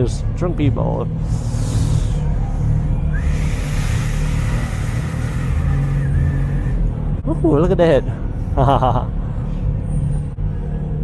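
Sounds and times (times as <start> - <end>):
motorcycle engine low rumble: 0.0 - 11.0
rushing noise: 1.2 - 7.2.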